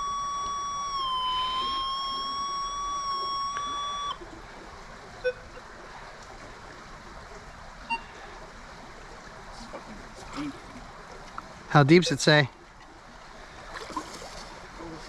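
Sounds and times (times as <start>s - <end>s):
metal detector tone: 0.0s - 4.2s
short beeps: 0.0s - 4.2s, 7.9s - 8.1s
shallow water trickling: 0.1s - 15.0s.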